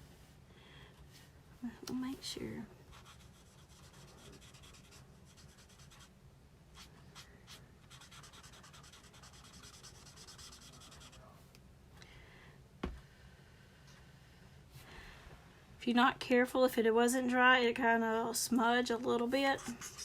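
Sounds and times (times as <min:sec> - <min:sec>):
marker rubbing on card: 0:02.9 - 0:06.1, 0:06.8 - 0:11.2, 0:19.6 - 0:20.0.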